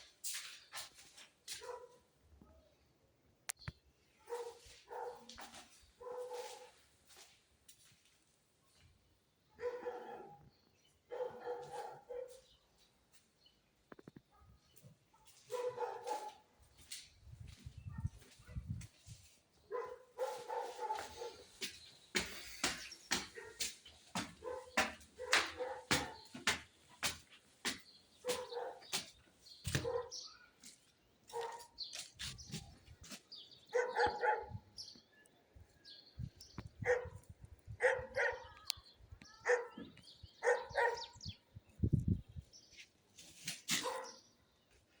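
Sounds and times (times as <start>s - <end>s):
dog barking: 1.5s - 2.1s, 4.2s - 6.8s, 9.6s - 10.5s, 11.1s - 12.5s, 15.2s - 16.5s, 17.9s - 18.7s, 19.7s - 21.7s, 23.4s - 26.3s, 28.2s - 29.0s, 29.7s - 30.3s, 31.3s - 31.8s, 33.7s - 34.6s, 36.8s - 37.2s, 37.8s - 38.6s, 39.4s - 41.2s, 43.7s - 44.2s.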